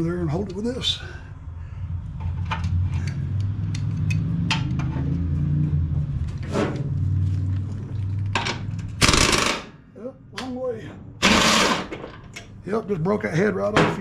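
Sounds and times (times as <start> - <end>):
steady low hum: 0.0 - 4.1
socket wrench clicking: 2.6 - 4.8.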